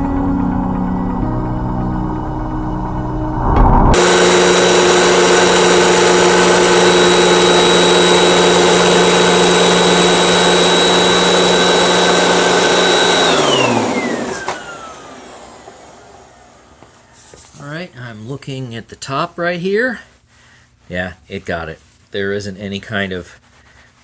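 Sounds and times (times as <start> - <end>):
vacuum cleaner whine: 0.0 - 17.5.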